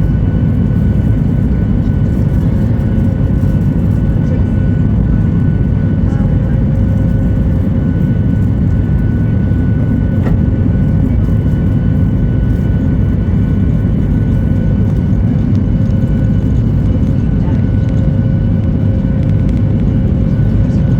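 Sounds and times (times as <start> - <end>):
jet engine rumble in cabin: 0.0 - 20.9.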